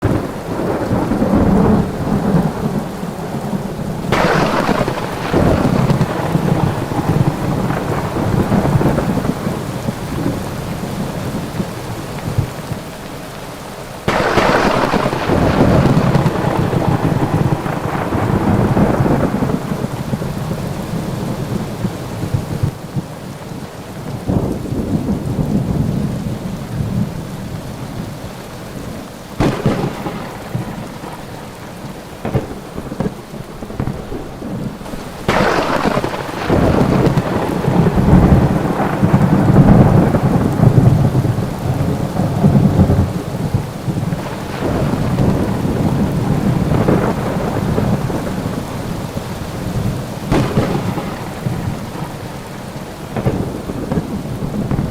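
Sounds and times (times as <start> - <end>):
thunder cracks and rumbling: 0.0 - 12.7, 14.0 - 22.8, 29.4 - 54.9
rain falling steadily: 0.0 - 54.9.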